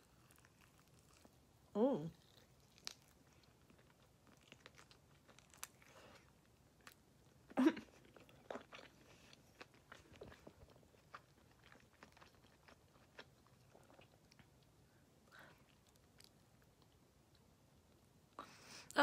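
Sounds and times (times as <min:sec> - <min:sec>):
person chewing with crunches: 0:00.0 - 0:01.4, 0:02.0 - 0:14.7.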